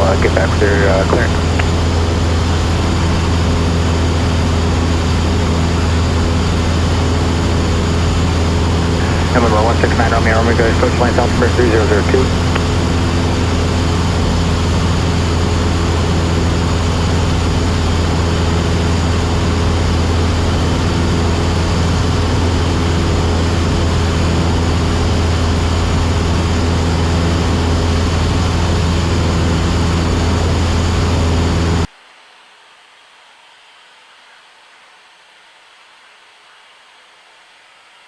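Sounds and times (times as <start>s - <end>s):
airplane engine and propeller droning: 0.0s - 31.9s
faint steady hiss: 31.9s - 38.0s.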